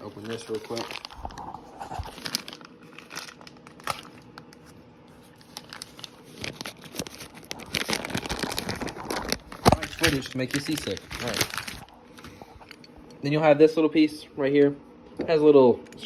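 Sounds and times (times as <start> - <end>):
packaging crinkling and tearing: 0.0 - 12.3.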